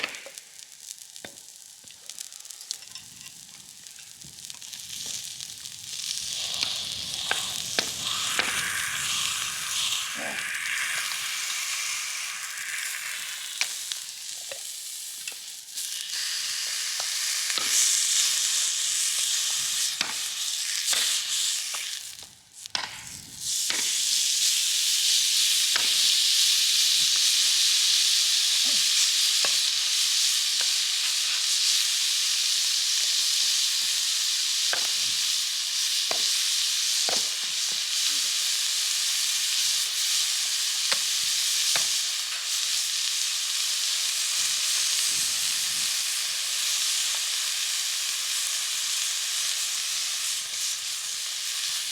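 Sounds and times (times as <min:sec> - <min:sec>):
steak sizzling in a pan: 0:00.0 - 0:51.9
fat popping and spitting: 0:06.2 - 0:11.8.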